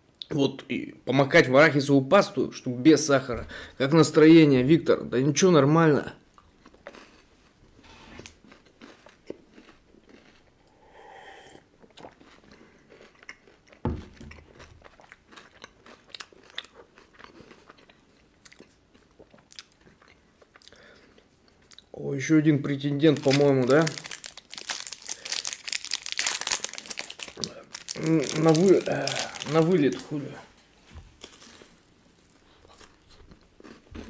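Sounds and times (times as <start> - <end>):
person crunching sweets: 6.3 - 7.6, 8.3 - 11.0, 11.6 - 21.9, 22.6 - 30.4, 31.2 - 34.0
low thump: 13.8 - 14.4.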